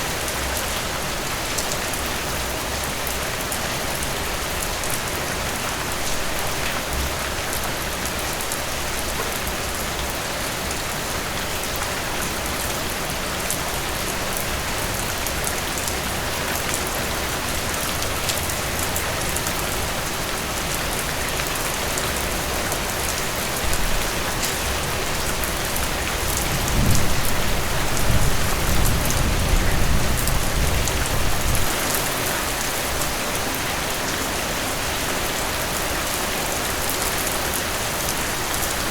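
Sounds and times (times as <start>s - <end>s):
heavy rain falling: 0.0s - 38.9s
thunder rumbling: 26.4s - 31.7s.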